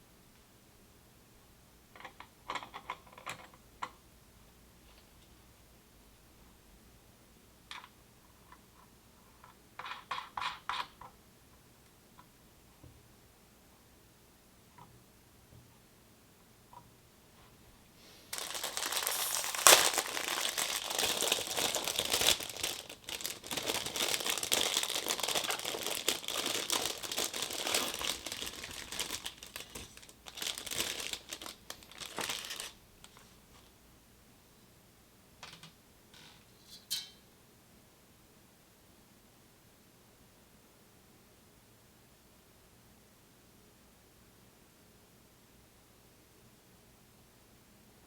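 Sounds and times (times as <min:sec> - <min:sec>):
packaging crinkling: 0:18.3 - 0:33.2.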